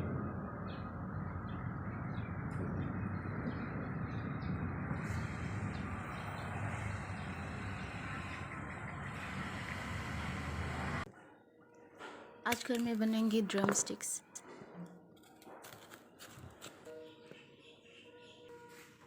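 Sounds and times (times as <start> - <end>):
birds chirping: 0.6 - 10.5.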